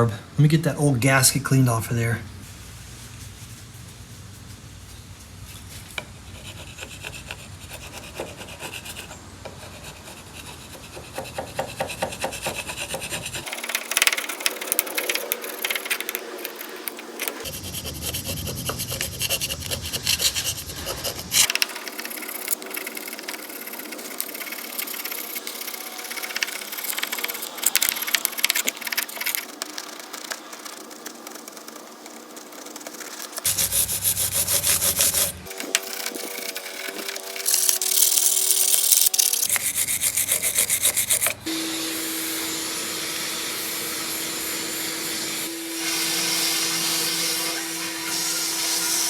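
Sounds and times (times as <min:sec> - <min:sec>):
hand tool rasping on metal: 0:06.4 - 0:30.4, 0:31.3 - 0:41.4.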